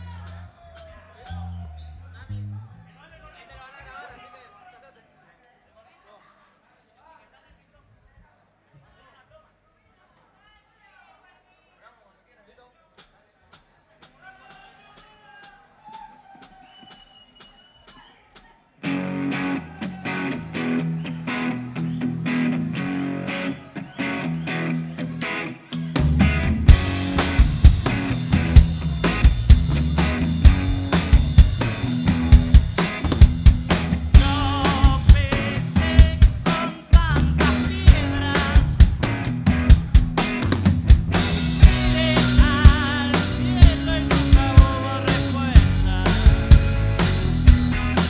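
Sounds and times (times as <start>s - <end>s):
bass line: 0.0s - 3.0s, 24.3s - 48.0s
held guitar notes: 18.8s - 36.5s, 37.2s - 48.0s
live rock band playing: 18.8s - 48.0s
drum kit beat: 25.2s - 48.0s.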